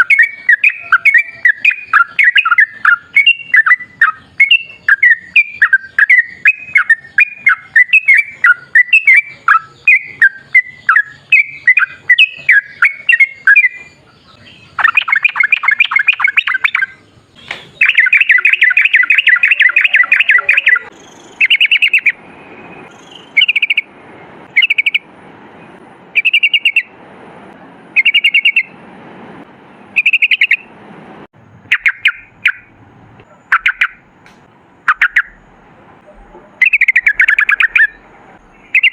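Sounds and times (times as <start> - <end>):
bird bubbling chirps: 0.0 - 22.2, 22.9 - 23.9, 31.7 - 32.7, 33.5 - 34.0, 34.9 - 35.4, 36.6 - 38.0, 38.6 - 38.9.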